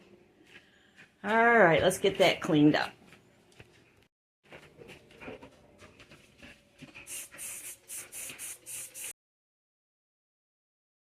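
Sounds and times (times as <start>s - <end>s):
rustling and scraping: 2.9s - 7.6s
quick hissing scrubbing strokes: 7.1s - 9.1s.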